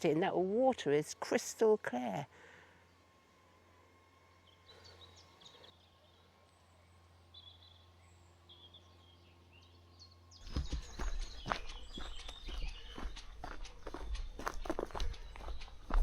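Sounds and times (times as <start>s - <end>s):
small birds chirping: 2.2s - 16.0s
close footsteps: 10.4s - 16.0s.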